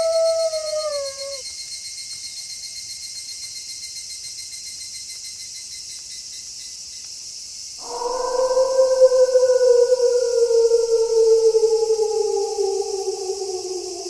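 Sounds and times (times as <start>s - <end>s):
wolf howling: 0.0s - 1.4s, 7.8s - 14.0s
crickets chirring: 0.0s - 14.0s.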